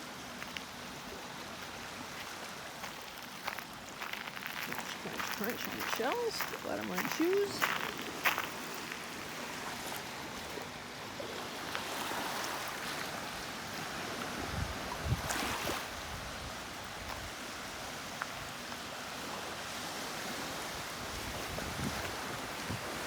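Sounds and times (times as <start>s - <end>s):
lake waves washing on shore: 0.0s - 23.0s
wind: 0.0s - 23.0s.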